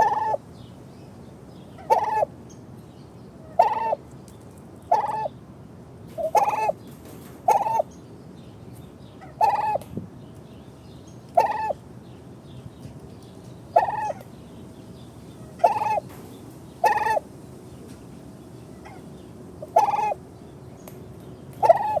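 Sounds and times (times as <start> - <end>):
turkey gobbling: 0.0 - 0.4, 1.8 - 2.3, 3.6 - 4.0, 4.9 - 5.3, 6.2 - 6.7, 7.5 - 7.8, 9.3 - 9.8, 11.4 - 11.8, 13.8 - 14.2, 15.5 - 16.1, 16.8 - 17.2, 19.6 - 20.2, 21.6 - 22.0.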